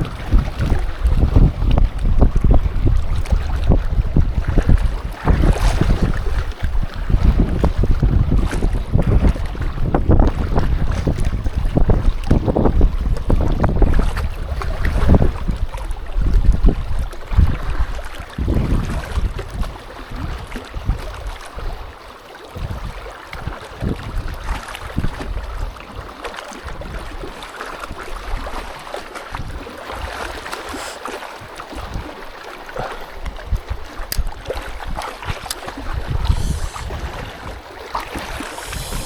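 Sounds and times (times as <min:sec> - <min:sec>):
wind buffeting microphone: 0:00.0 - 0:30.8, 0:31.4 - 0:39.0
steady hiss: 0:36.3 - 0:36.9, 0:38.4 - 0:39.0.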